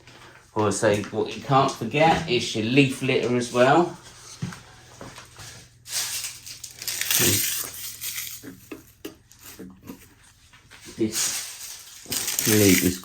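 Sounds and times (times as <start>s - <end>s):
dry leaves rustling and crackling: 5.9s - 8.6s, 10.8s - 13.0s.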